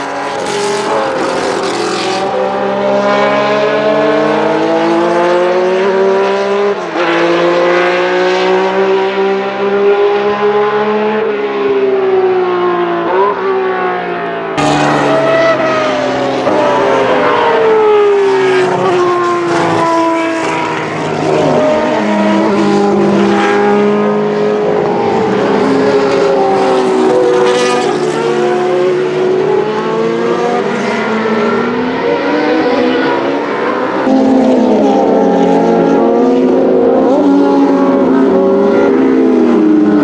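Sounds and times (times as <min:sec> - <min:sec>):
racing car engines: 0:00.0 - 0:40.0.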